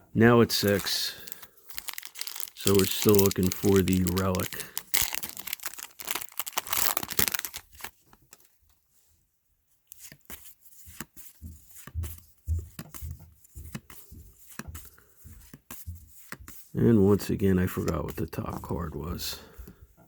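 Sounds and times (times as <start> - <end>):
cards being handled and flipped: 0.5 - 8.5, 9.9 - 19.0
foil wrapper tearing and crinkling: 0.5 - 8.5.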